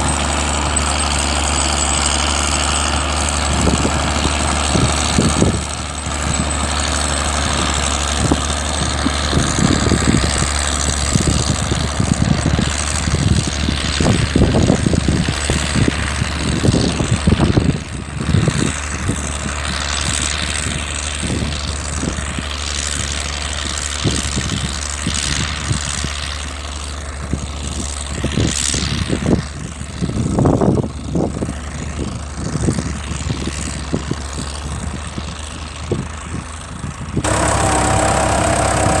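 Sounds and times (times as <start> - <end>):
low rumbles: 37.2 - 39.0
tractor engine humming: 37.2 - 39.0.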